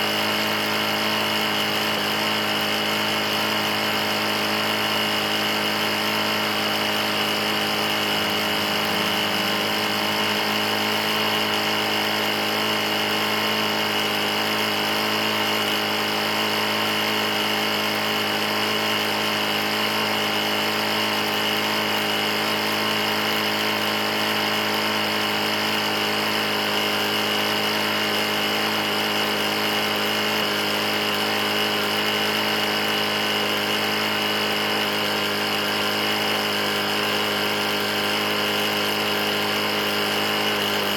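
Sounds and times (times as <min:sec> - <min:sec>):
lawn mower engine knocking: 0:00.0 - 0:40.9.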